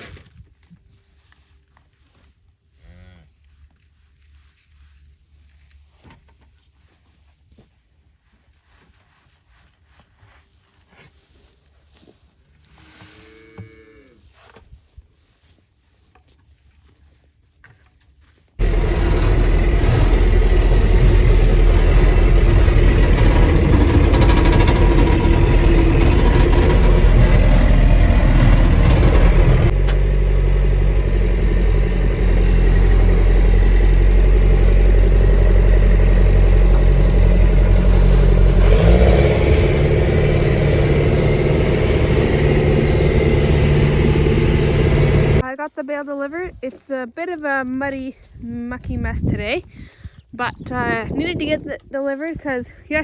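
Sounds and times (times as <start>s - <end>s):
tractor engine running: 18.6s - 45.5s.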